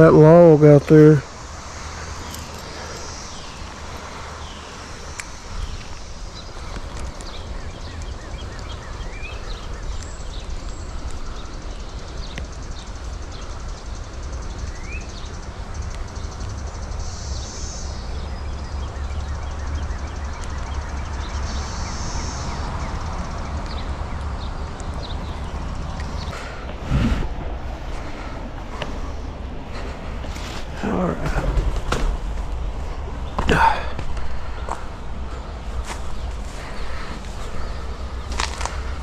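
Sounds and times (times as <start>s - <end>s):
bird chirps: 1.2s - 27.2s
wind rumbling on microphone: 20.8s - 39.0s.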